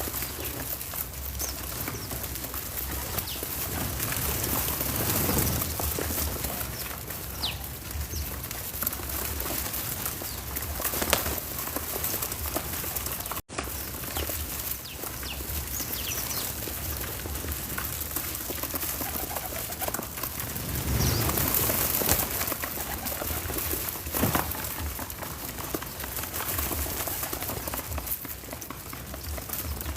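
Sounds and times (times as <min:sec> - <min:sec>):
birds chirping: 0:00.0 - 0:29.9.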